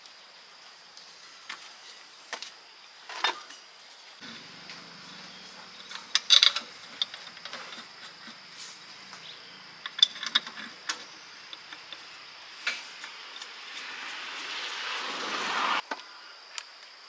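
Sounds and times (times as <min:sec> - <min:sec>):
rushing hiss: 0:08.4 - 0:15.8.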